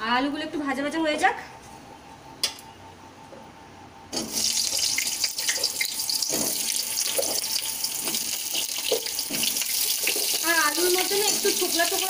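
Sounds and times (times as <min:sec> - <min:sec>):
oil crackles and pops: 0:04.2 - 0:12.0
potatoes sizzling in hot oil: 0:04.2 - 0:12.0.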